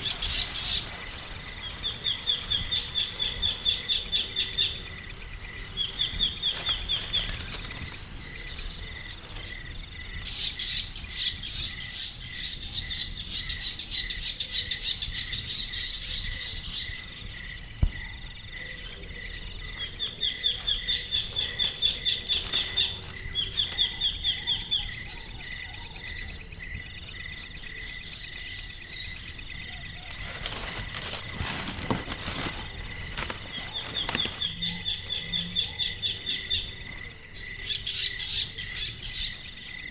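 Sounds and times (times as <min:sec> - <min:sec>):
bird chirping: 0:00.0 - 0:08.5, 0:18.7 - 0:26.2
crickets chirping: 0:00.0 - 0:39.9.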